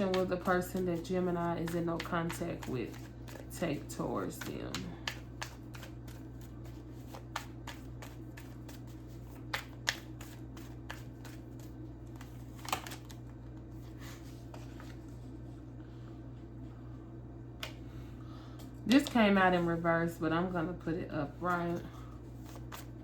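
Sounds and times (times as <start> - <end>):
cards being shuffled by hand: 0.0 - 15.3, 21.4 - 23.0
steady low hum: 0.0 - 23.0.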